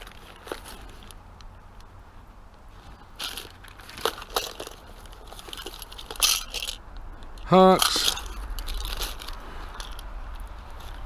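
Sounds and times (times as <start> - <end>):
bag rustling: 2.8 - 6.8.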